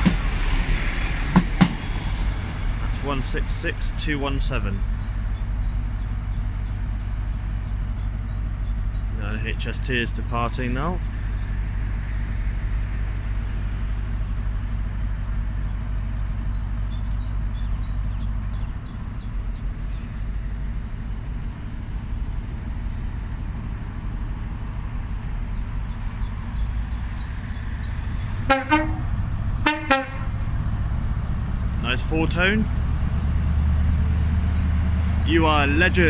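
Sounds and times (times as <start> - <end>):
train horn blasts: 0.0 - 8.9, 18.5 - 30.6
diesel train engine rumbling: 0.0 - 36.0.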